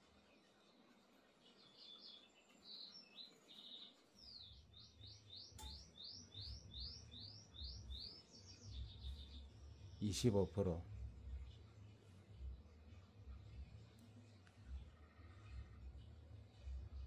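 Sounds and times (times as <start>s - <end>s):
small bird chirping: 1.4s - 12.6s
faint low rumble: 10.7s - 17.0s.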